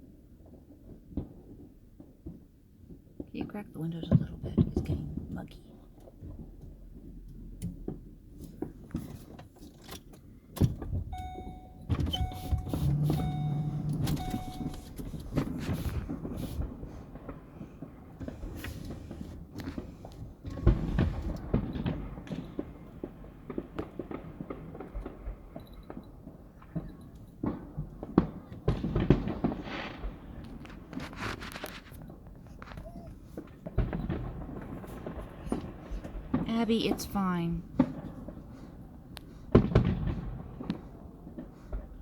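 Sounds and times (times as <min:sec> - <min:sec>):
car chime beeping: 0:11.1 - 0:15.6
power window motor humming: 0:11.2 - 0:15.8.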